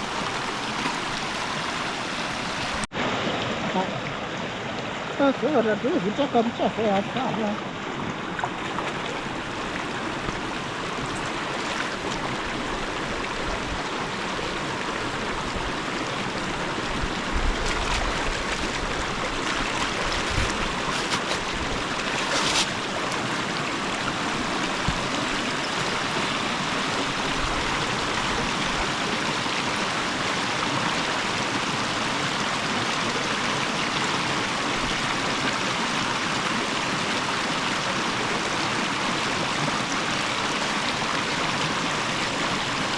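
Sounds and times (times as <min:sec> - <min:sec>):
river water flowing: 0:00.0 - 0:42.9.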